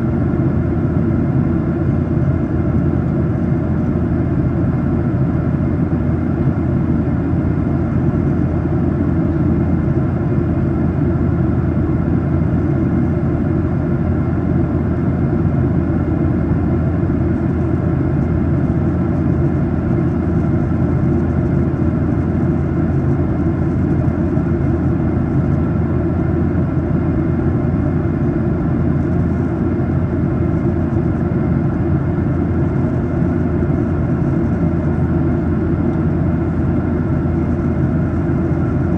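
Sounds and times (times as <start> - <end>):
airplane cabin drone: 0.0 - 38.9.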